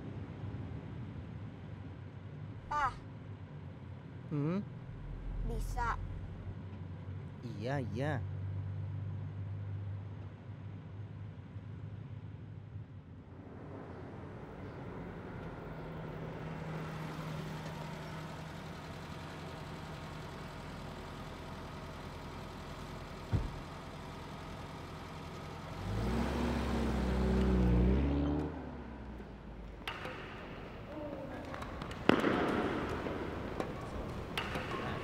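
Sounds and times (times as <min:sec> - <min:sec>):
car engine idling: 0:02.5 - 0:11.7, 0:13.4 - 0:35.0
car engine revving and driving past: 0:04.7 - 0:07.4, 0:13.2 - 0:35.0
thump: 0:23.3 - 0:23.6.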